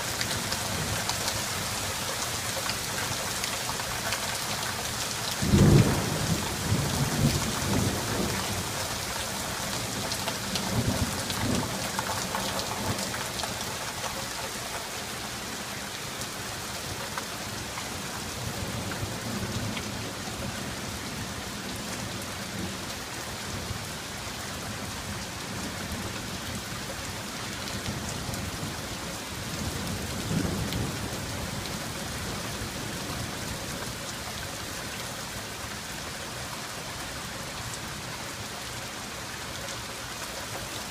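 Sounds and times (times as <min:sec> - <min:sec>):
heavy rain falling: 0:00.0 - 0:40.9
rolling thunder: 0:05.4 - 0:08.6.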